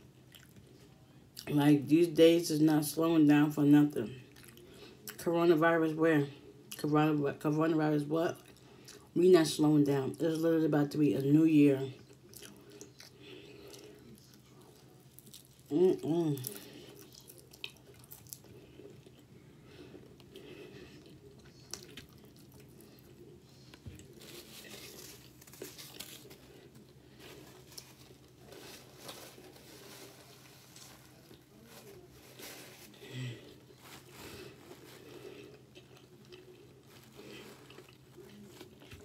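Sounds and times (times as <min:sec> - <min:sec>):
chewing and crunching onion rings: 0:00.0 - 0:05.3, 0:05.9 - 0:11.0, 0:11.6 - 0:39.0
faint steady hum: 0:00.0 - 0:39.0
paper napkin crinkling: 0:23.6 - 0:39.0.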